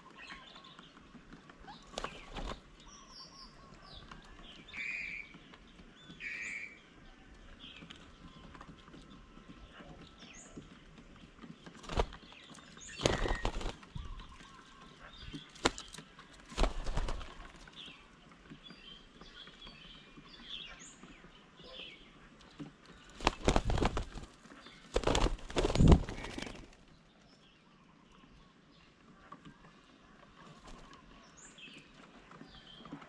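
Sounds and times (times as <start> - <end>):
wing flapping and scuffling: 0.0 - 6.2, 6.8 - 20.4, 22.2 - 27.2, 29.1 - 33.0
faint bird chirps: 18.7 - 33.0.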